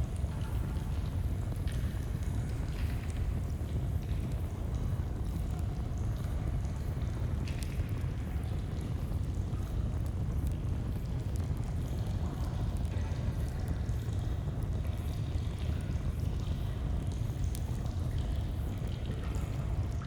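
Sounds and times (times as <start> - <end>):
campfire crackling: 9.0 - 12.2.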